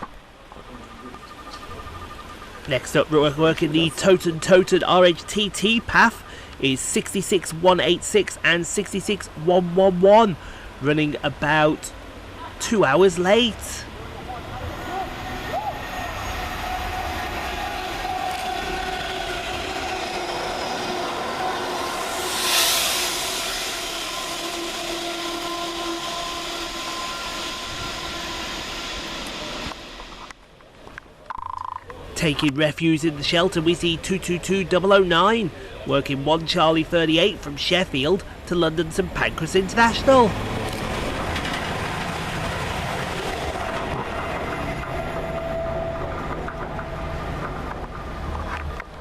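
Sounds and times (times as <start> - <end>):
diesel train passing: 0.0 - 31.2, 31.9 - 49.0
steady tones: 0.8 - 48.9.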